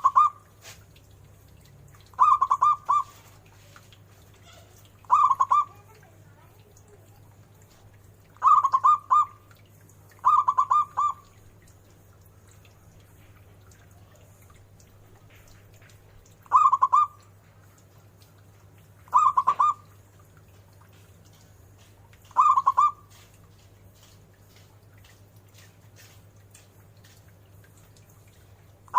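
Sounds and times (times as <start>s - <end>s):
dove cooing: 0.0s - 0.5s, 2.2s - 3.4s, 4.4s - 6.0s, 8.4s - 9.4s, 10.2s - 11.4s, 16.5s - 17.2s, 19.1s - 19.9s, 22.3s - 23.1s.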